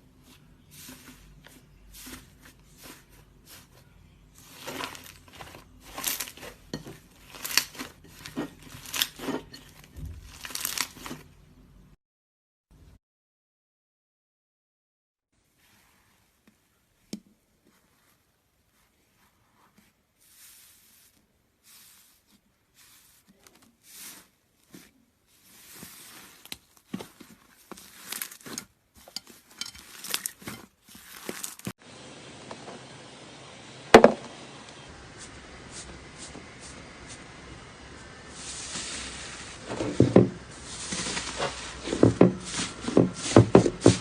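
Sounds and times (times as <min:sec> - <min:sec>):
slime crackling: 0:01.9 - 0:11.3, 0:21.6 - 0:31.8.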